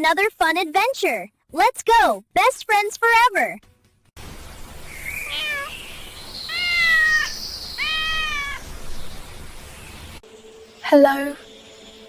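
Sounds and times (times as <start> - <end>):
faint steady hiss: 4.2 - 10.8
cat meowing: 5.2 - 5.8, 6.5 - 8.7.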